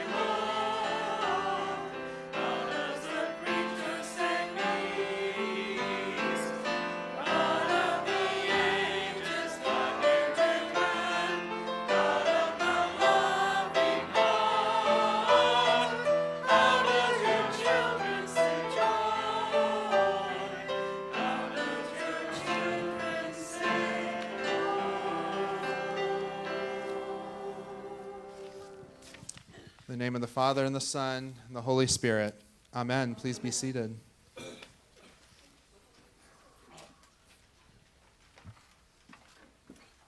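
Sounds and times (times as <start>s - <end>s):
instrumental accompaniment: 0.0s - 29.1s
congregation singing a hymn: 0.0s - 29.2s.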